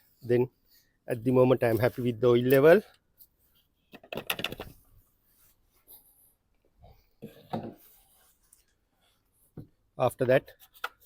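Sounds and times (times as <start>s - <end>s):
hands rubbing and knocking parts: 1.6s - 6.7s.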